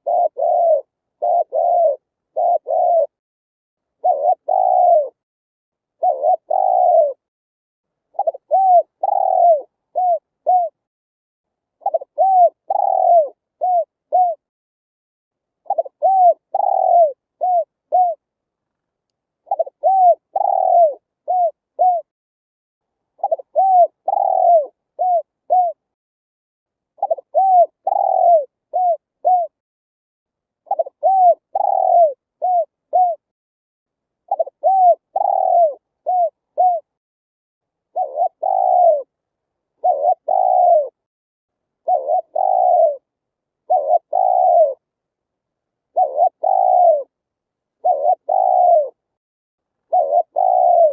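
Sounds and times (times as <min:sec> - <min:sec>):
dove cooing: 0:00.0 - 0:03.2, 0:04.0 - 0:05.2, 0:06.0 - 0:07.3, 0:08.1 - 0:10.8, 0:11.8 - 0:14.5, 0:15.6 - 0:18.2, 0:19.4 - 0:22.1, 0:23.2 - 0:25.8, 0:27.0 - 0:29.6, 0:30.7 - 0:33.3, 0:34.3 - 0:36.9, 0:37.9 - 0:39.1, 0:39.8 - 0:41.0, 0:41.8 - 0:44.9, 0:45.9 - 0:47.2, 0:47.8 - 0:49.0, 0:49.9 - 0:50.9.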